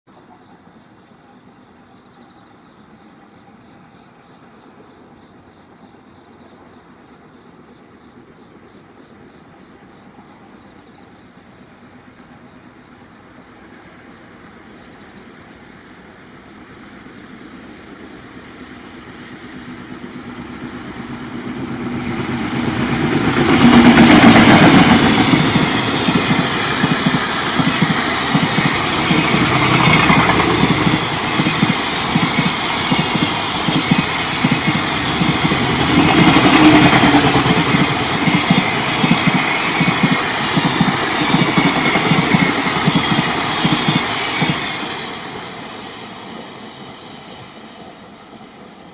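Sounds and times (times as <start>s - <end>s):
electric locomotive passing: 0.2s - 48.9s.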